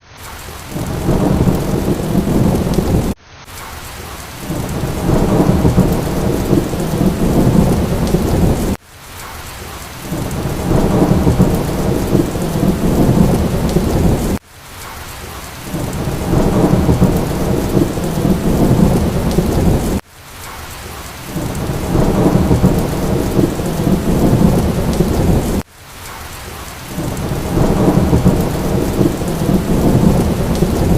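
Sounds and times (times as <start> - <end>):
heavy rain: 0.0 - 30.9
rolling thunder: 0.7 - 3.2, 4.4 - 8.8, 10.0 - 14.4, 15.7 - 20.0, 21.4 - 25.6, 26.9 - 30.9.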